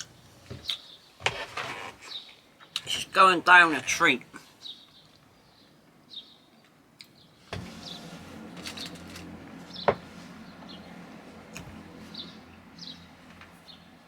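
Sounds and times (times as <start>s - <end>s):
birds chirping: 0.0s - 1.2s, 1.9s - 8.2s, 9.6s - 11.0s, 11.7s - 13.9s
engine humming: 7.4s - 14.0s.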